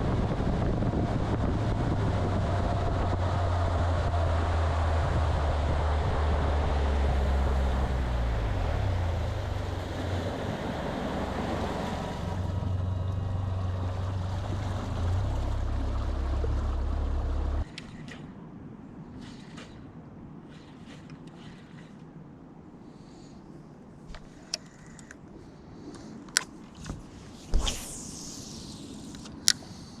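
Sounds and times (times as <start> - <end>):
motorboat engine droning: 0.0 - 18.4
wind: 0.0 - 30.0
water rushing: 1.9 - 18.1, 27.1 - 29.5.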